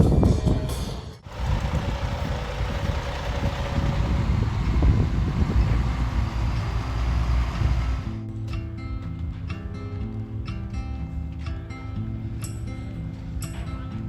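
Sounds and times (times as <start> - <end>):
truck engine running: 1.2 - 8.2.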